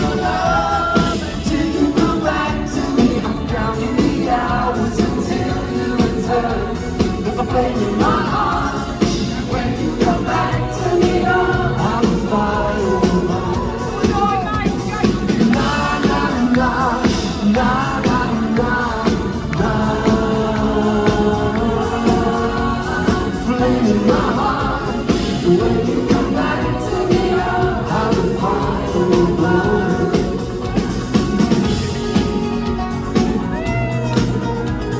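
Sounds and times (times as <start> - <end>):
band accompaniment: 0.0 - 34.9
man singing pop song live: 0.0 - 34.9.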